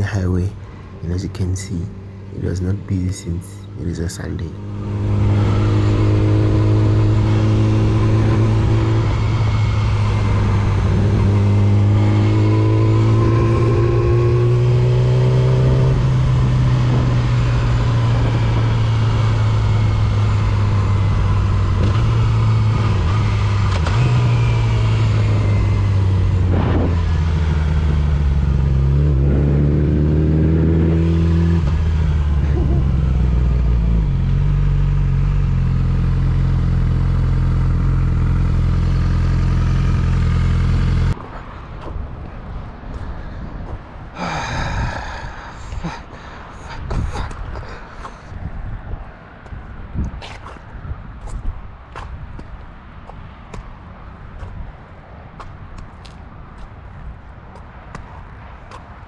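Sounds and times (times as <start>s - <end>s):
motorcycle engine accelerating: 4.5s - 41.2s.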